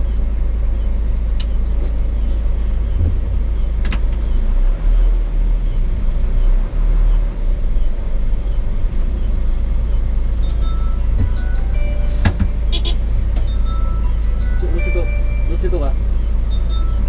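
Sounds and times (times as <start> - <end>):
truck diesel engine drone: 0.0 - 17.0
faint regular tick: 1.4 - 1.6.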